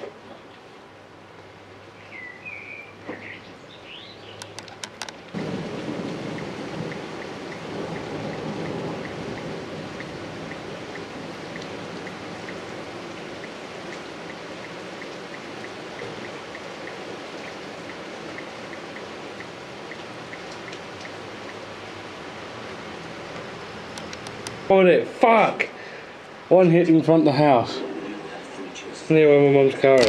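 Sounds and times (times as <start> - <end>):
rain falling: 0.0 - 30.0
bird chirps: 2.0 - 4.6
faint regular ticking: 6.2 - 21.7, 23.3 - 24.7.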